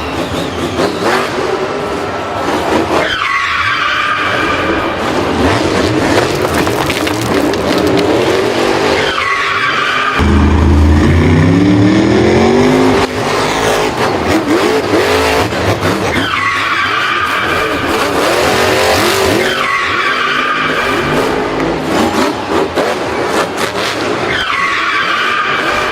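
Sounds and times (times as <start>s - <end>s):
tires squealing: 0.0s - 25.9s
racing engine revving: 7.5s - 24.4s.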